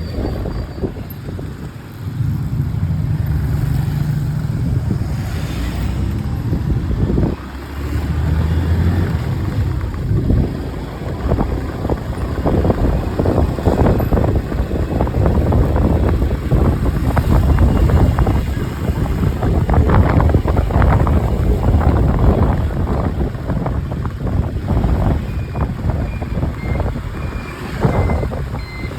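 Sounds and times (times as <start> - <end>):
road noise: 0.0 - 28.9
wind buffeting microphone: 0.0 - 28.9
motorcycle engine running: 6.0 - 28.9.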